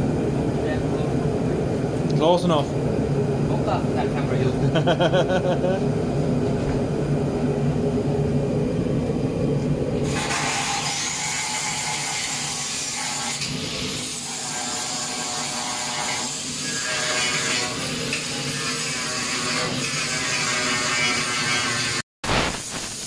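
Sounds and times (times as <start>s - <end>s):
power tool grinding: 10.0s - 22.0s.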